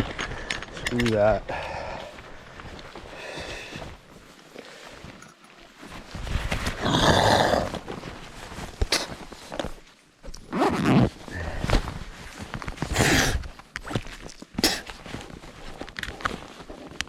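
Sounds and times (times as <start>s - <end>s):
man breathing on microphone: 1.4s - 4.0s.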